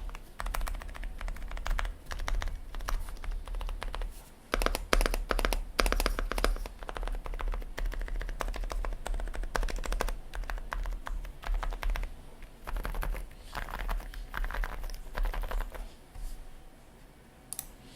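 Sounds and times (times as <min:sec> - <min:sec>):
soft muted keyboard typing: 0:00.0 - 0:16.4
steady low hum: 0:00.0 - 0:17.9.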